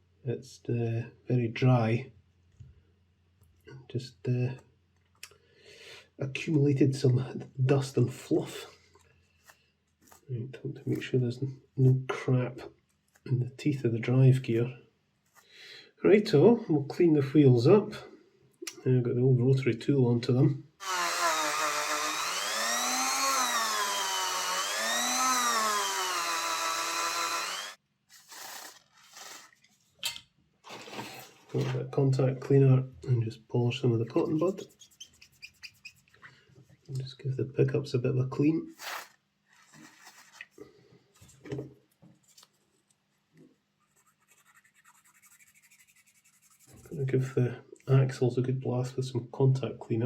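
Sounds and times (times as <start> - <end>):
rotary tool whining: 20.8 - 29.5.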